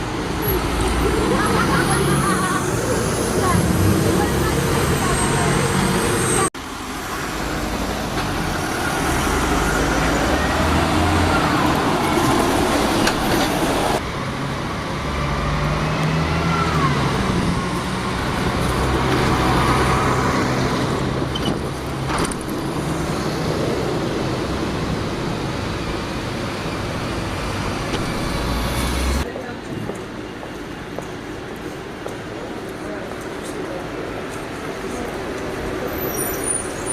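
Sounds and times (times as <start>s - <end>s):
diesel engines running: 0.0s - 29.3s
road traffic: 0.0s - 36.9s.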